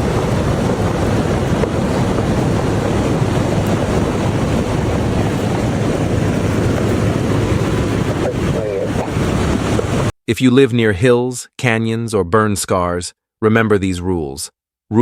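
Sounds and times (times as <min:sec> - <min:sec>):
floodwater rushing: 0:00.0 - 0:10.1.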